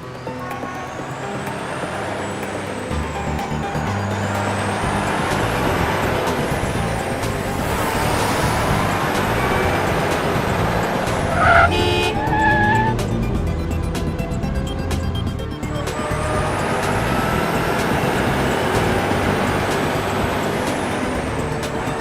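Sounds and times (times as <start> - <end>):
garbage truck engine: 0.0 - 22.0
traffic: 0.0 - 22.0
horn honk: 7.5 - 13.2.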